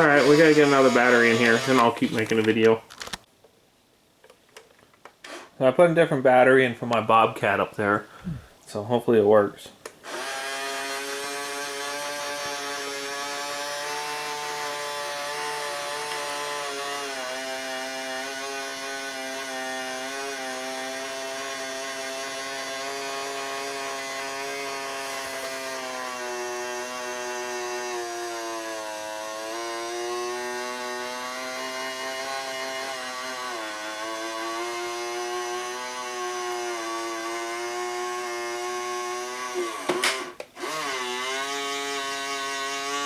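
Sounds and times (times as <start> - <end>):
electric gear motors whining: 0.0 - 3.2, 39.2 - 43.0.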